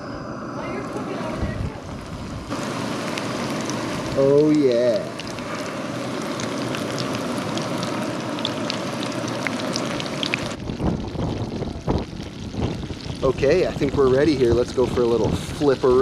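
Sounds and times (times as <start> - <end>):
low rumbles: 0.0 - 16.0
chicken sizzling in hot oil: 1.9 - 16.0
oil popping and crackling: 2.0 - 16.0.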